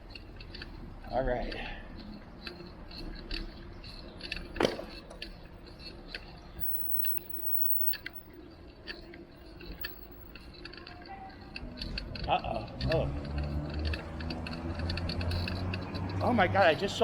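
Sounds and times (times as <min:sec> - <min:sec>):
low steady hum: 0:06.6 - 0:08.2
bicycle rattling and clicking: 0:12.9 - 0:17.0.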